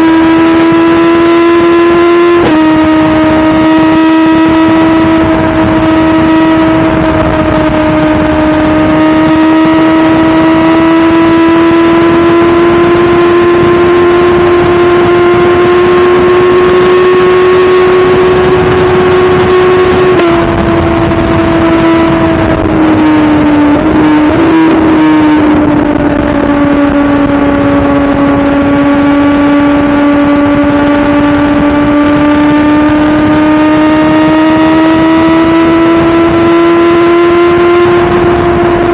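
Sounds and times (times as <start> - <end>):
motorcycle engine revving: 0.0 - 38.9
wind noise: 0.0 - 38.9.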